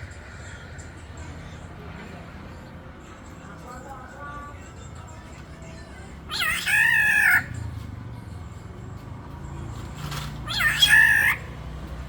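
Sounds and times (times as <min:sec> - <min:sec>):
oriole call: 0:06.3 - 0:07.5, 0:10.5 - 0:11.4.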